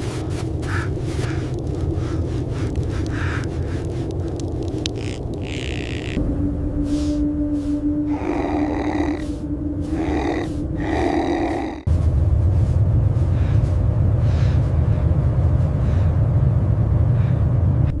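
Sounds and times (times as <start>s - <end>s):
loud low rumble: 0.0s - 18.0s
animal-like growl: 8.1s - 11.9s.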